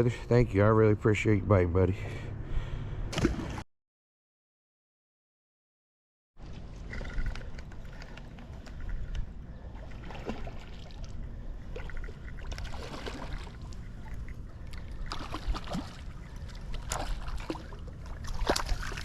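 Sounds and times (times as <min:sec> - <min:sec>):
water splashing and sloshing: 0:03.1 - 0:03.6, 0:06.4 - 0:19.0.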